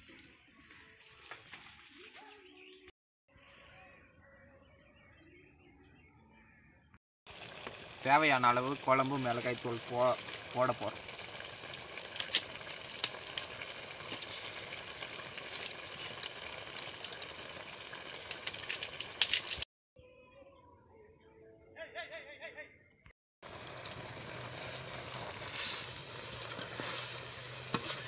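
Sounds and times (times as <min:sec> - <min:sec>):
even hiss: 0:07.3 - 0:19.6, 0:23.4 - 0:28.0
high-pitched insect trilling: 0:20.0 - 0:23.1.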